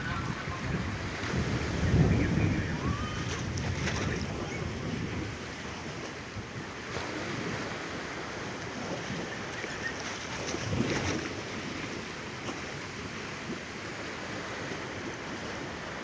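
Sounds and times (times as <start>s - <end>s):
wind buffeting microphone: 0.0s - 7.8s, 8.4s - 11.9s
sea waves washing against ferry: 0.0s - 16.0s.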